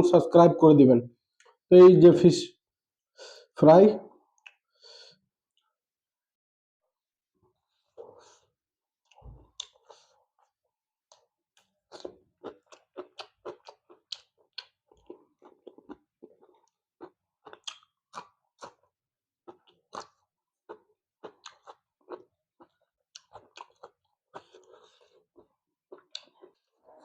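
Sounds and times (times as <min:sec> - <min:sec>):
person chewing crunchy food: 0:07.7 - 0:27.0.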